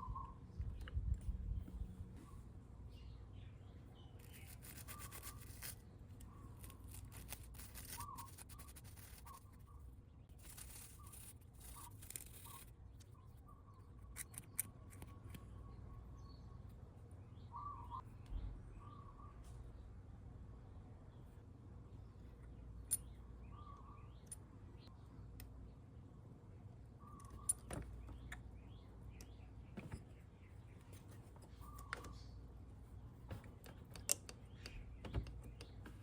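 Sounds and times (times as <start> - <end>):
rapid scratching or scrubbing: 6.6 - 9.7, 10.3 - 12.7.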